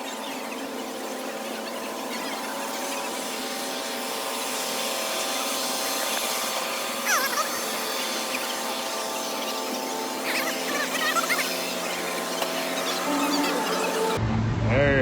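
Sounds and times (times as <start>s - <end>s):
mechanical whirring hum: 0.0s - 14.2s
high gliding squeak: 7.0s - 14.2s.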